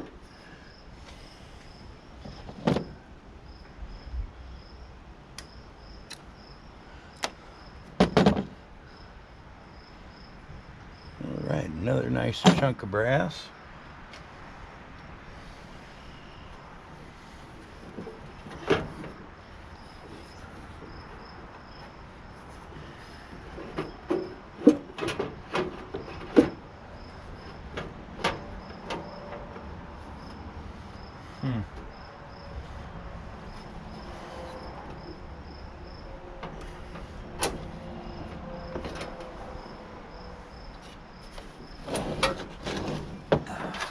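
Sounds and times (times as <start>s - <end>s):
metal parts and hand tools clanking: 40.8s - 43.9s.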